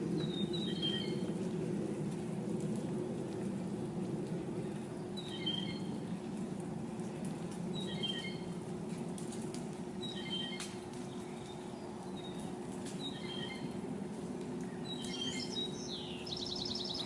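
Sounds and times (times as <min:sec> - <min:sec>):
steady low hum: 0:00.0 - 0:17.0
songbird chirping phrase: 0:14.9 - 0:17.0.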